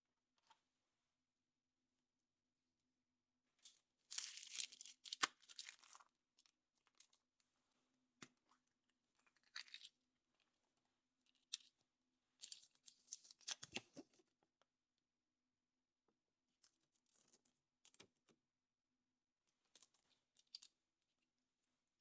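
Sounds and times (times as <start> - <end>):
foil wrapper crinkling: 4.1 - 6.0.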